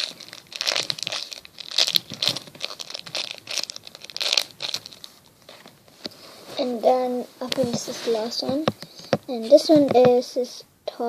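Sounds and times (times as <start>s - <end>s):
plastic packaging crinkling: 0.0s - 5.8s.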